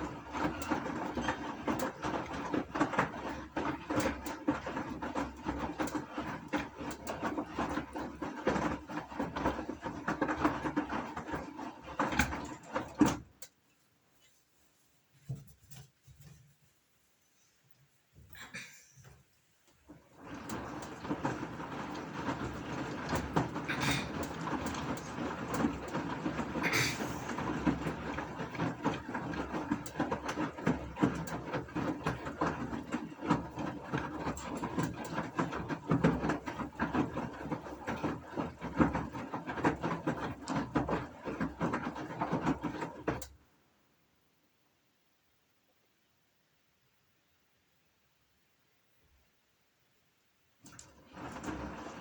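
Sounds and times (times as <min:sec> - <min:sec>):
washing machine drum clattering: 0:00.0 - 0:13.4, 0:19.9 - 0:43.2, 0:50.7 - 0:52.0.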